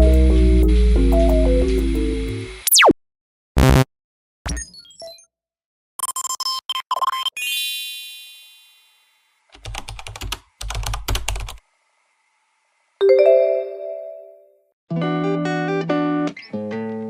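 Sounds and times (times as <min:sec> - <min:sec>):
rapid keyboard-like clicking: 0:09.5 - 0:11.6
bright chime: 0:13.0 - 0:14.4
lower chime: 0:13.0 - 0:14.4.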